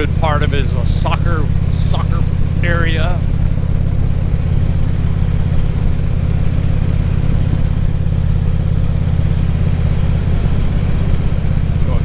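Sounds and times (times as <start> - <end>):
motorcycle engine cruising: 0.0 - 12.0
road and wind noise: 0.0 - 12.0.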